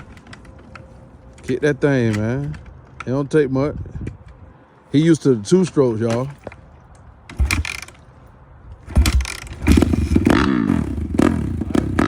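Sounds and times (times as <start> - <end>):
dirt bike kick-start: 7.3 - 8.0, 8.8 - 12.0
dirt bike engine revving: 7.4 - 7.9, 8.9 - 12.0.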